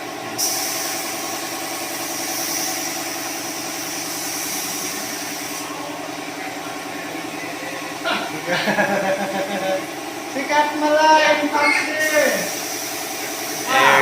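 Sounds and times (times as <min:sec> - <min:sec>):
air compressor humming: 0:00.0 - 0:14.0
spray gun hissing: 0:00.4 - 0:05.7, 0:12.0 - 0:13.8.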